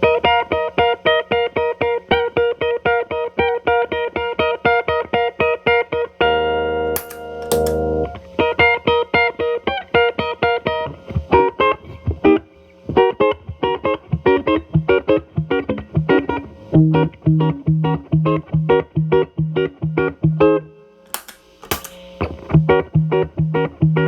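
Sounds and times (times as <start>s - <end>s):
distorted electric guitar: 6.2s - 8.6s.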